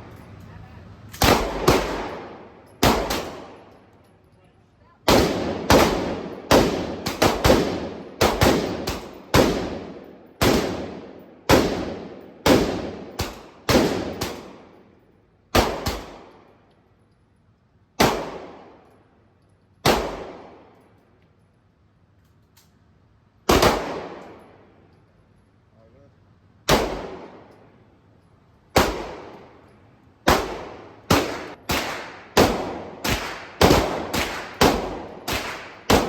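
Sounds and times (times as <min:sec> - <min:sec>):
gunshots with echoing tail: 0:01.2 - 0:03.7, 0:05.1 - 0:14.8, 0:15.5 - 0:16.5, 0:18.0 - 0:18.9, 0:19.8 - 0:20.8, 0:23.5 - 0:24.6, 0:26.7 - 0:27.7, 0:28.8 - 0:29.6, 0:30.2 - 0:36.0.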